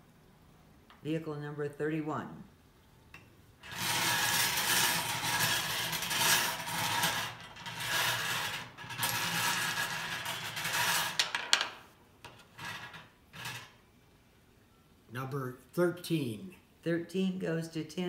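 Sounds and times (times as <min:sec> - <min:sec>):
balls rattling in turning cage: 0:03.6 - 0:13.8.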